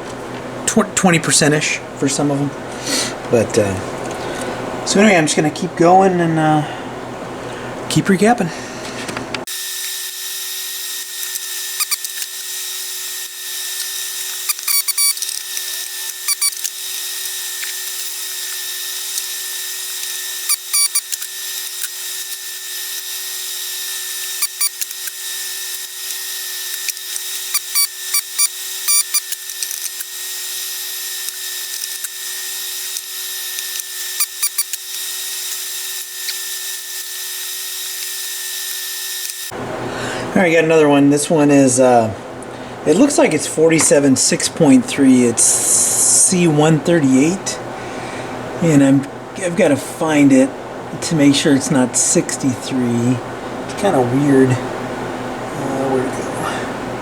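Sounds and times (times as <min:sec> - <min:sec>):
constant tones: 0:09.5 - 0:39.5
hand tools clicking: 0:09.5 - 0:39.5.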